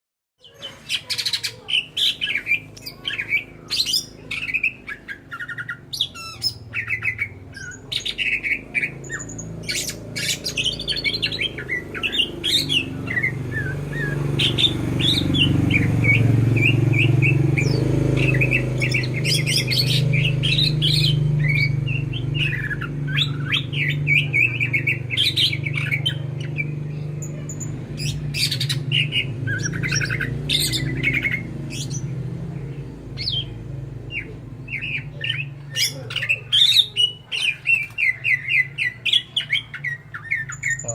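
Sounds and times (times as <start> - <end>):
bird singing rapid calls and trills: 0.4 - 40.9.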